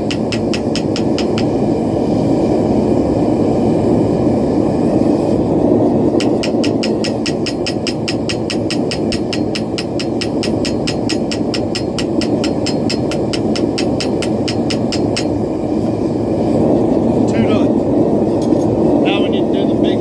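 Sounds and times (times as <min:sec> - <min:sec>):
hammer blows on steel anvil: 0:00.0 - 0:01.6, 0:06.1 - 0:15.4.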